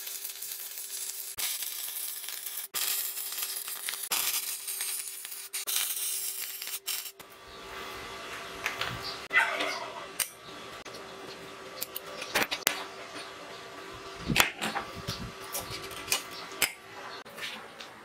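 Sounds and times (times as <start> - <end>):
welding arc crackling and sizzling: 0.0 - 8.8.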